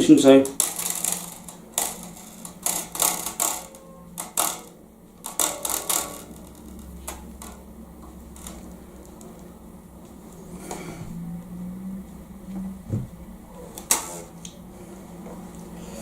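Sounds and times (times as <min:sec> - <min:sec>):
faint low hum: 0:00.0 - 0:16.0
bass guitar handling taps: 0:12.6 - 0:13.2.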